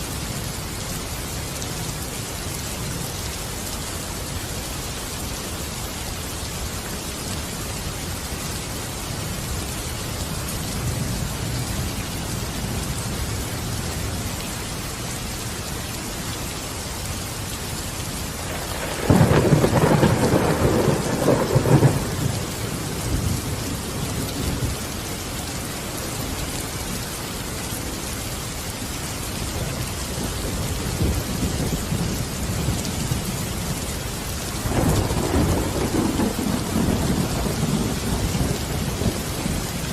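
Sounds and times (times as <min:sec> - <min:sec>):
steady rain falling: 0:00.0 - 0:39.9
thunder crack and rumble: 0:18.4 - 0:24.8, 0:30.1 - 0:33.5, 0:34.6 - 0:39.9.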